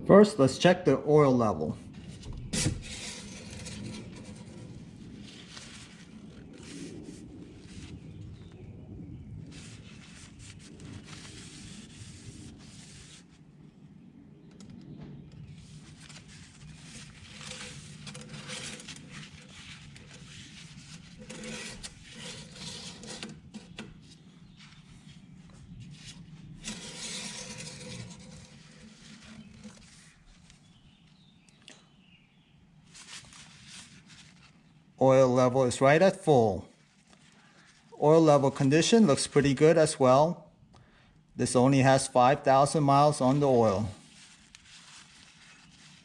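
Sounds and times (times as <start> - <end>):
dipstick scraping and rubbing: 2.0 - 7.0, 15.8 - 24.9, 26.0 - 30.7.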